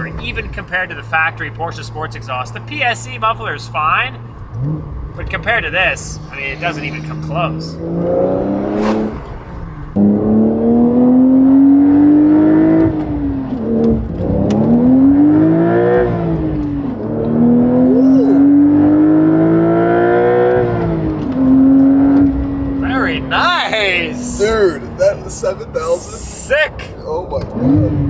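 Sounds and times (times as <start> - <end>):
sports car engine accelerating: 0.0 - 28.0.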